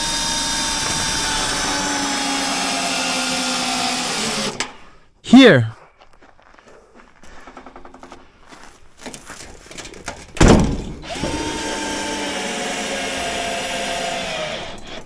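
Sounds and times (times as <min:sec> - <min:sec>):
power drill whining: 0:00.0 - 0:04.8, 0:11.0 - 0:15.0.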